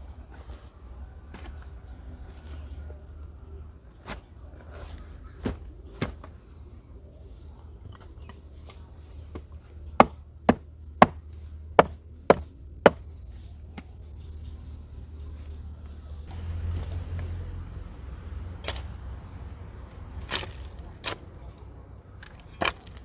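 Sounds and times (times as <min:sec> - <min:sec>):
blade chopping wood: 0:11.8 - 0:13.0.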